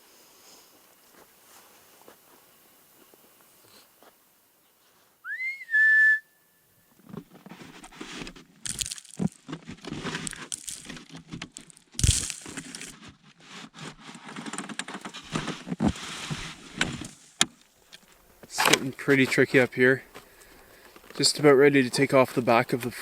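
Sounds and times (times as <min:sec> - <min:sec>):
rising whistle: 0:05.2 - 0:06.6
packed snow crunching and scraping: 0:07.2 - 0:17.4.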